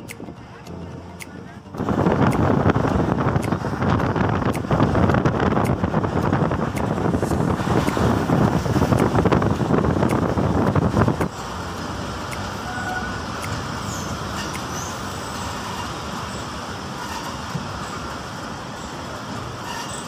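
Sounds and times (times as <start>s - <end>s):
train wheels on rails: 0.0s - 20.0s
wind on microphone: 1.8s - 11.4s.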